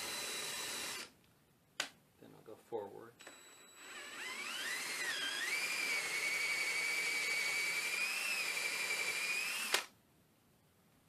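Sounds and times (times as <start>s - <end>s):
power drill whining: 0.0s - 1.1s, 3.2s - 9.9s.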